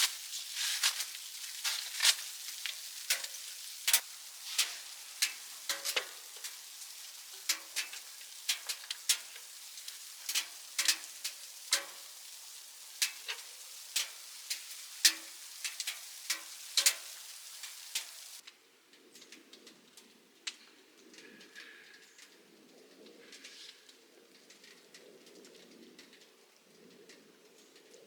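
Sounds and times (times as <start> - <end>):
faint hiss: 0.0 - 18.7
wood fire crackling: 0.0 - 28.0.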